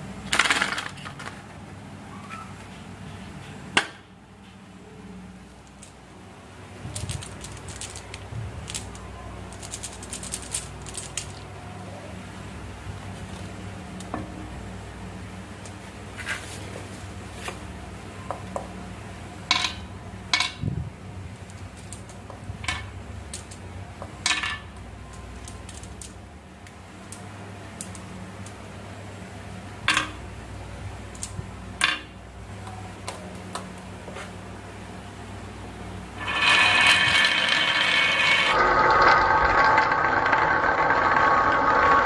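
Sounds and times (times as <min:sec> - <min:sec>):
continuous rattling: 0:06.8 - 0:11.5
marbles clicking on track: 0:06.9 - 0:11.4, 0:36.2 - 0:42.0.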